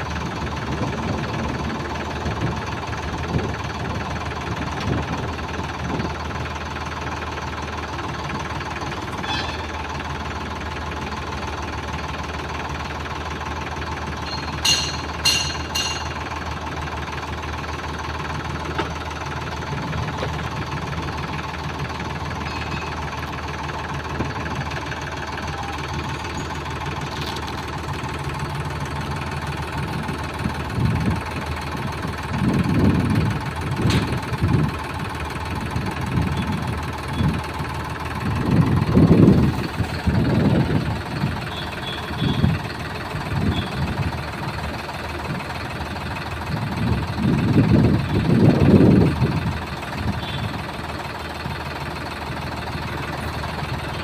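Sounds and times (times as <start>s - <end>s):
tractor diesel engine running: 0.0s - 54.0s
metallic clanks: 14.2s - 16.3s.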